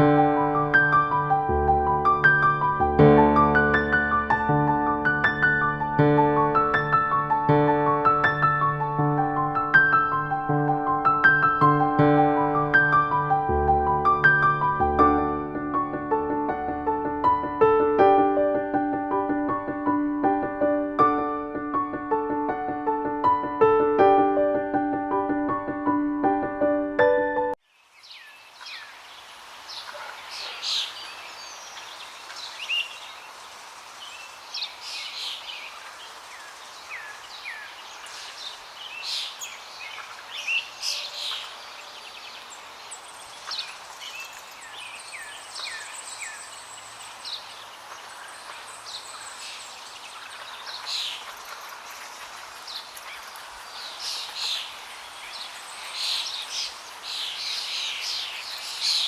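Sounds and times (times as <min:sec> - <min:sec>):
steady background hiss: 0:27.6 - 0:59.0
birds chirping and whistling: 0:34.6 - 0:59.0.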